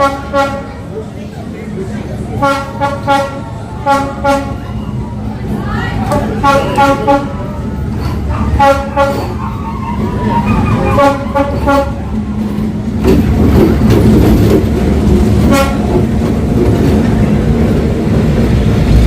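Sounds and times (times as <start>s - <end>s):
train horn toots: 0.0s - 0.8s, 2.4s - 4.8s, 6.1s - 7.6s, 8.3s - 12.2s, 15.4s - 16.0s
train rumbling past: 0.0s - 19.0s.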